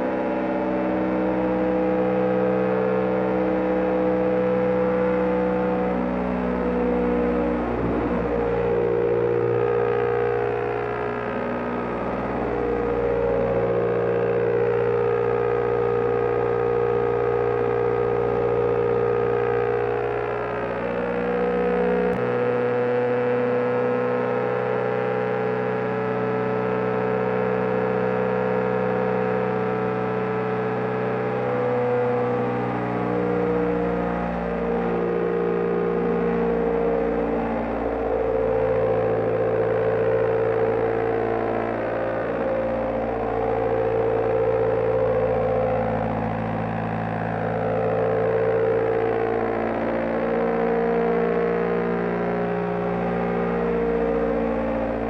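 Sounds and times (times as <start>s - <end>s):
motorcycle engine cruising: 2.9s - 22.2s.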